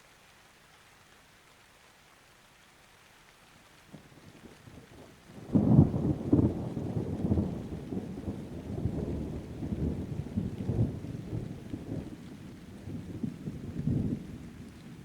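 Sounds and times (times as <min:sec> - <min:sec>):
rain: 0:00.0 - 0:15.0
rolling thunder: 0:05.4 - 0:15.0.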